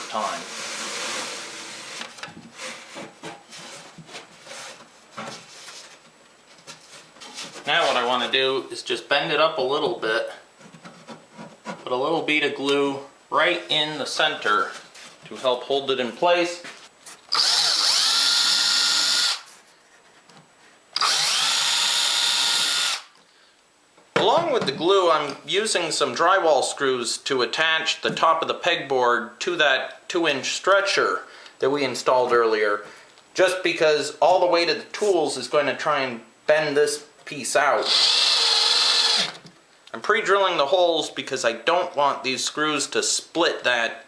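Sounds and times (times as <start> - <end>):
power drill whining: 17.3 - 19.5, 21.0 - 23.1, 37.8 - 39.4.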